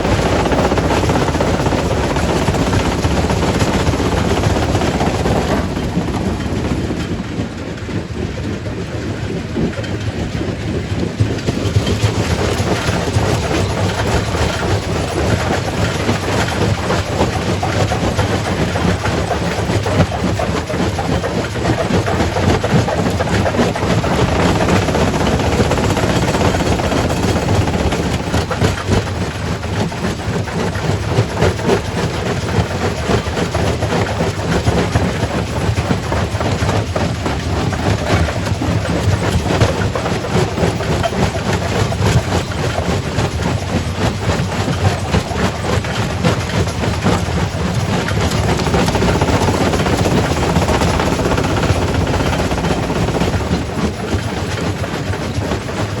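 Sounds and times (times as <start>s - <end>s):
heavy machine drone: 0.0s - 8.7s, 10.2s - 29.2s, 45.5s - 56.0s.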